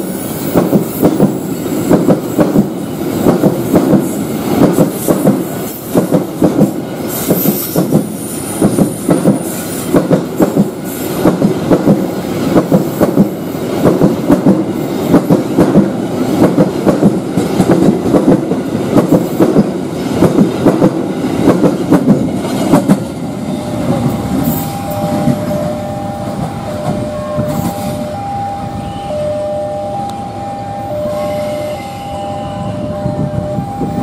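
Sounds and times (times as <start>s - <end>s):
train wheels clacking on rails: 0.0s - 28.2s
level crossing alarm two tones: 24.4s - 34.0s.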